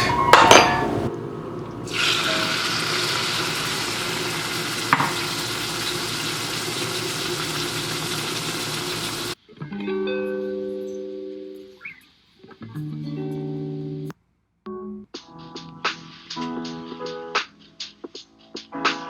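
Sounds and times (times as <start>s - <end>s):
utensil clinking against pan: 0.0s - 1.0s
chicken sizzling in a pan: 1.7s - 9.4s.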